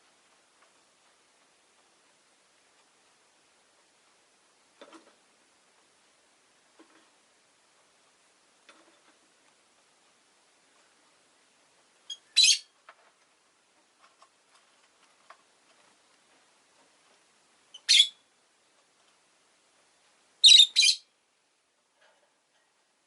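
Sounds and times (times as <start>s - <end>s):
lovebird shrill chirps: 12.1s - 12.7s, 17.7s - 18.2s, 20.4s - 21.1s.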